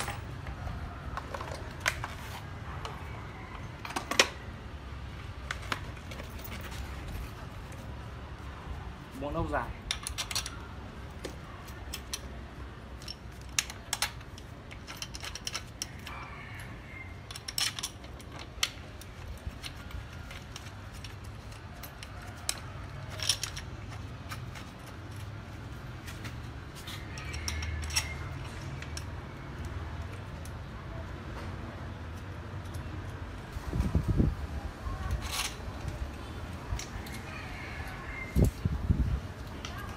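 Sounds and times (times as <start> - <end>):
metal bolts clinking and rattling: 0.0 - 2.2, 9.8 - 16.2, 17.2 - 29.3.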